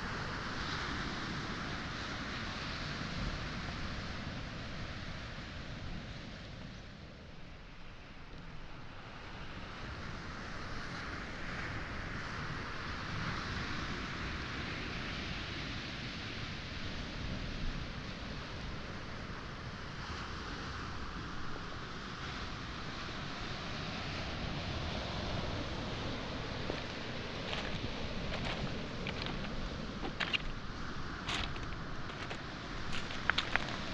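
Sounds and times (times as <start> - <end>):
waves washing onto pebble shore: 0.0 - 6.5, 9.0 - 33.9
wind buffeting microphone: 24.9 - 33.9.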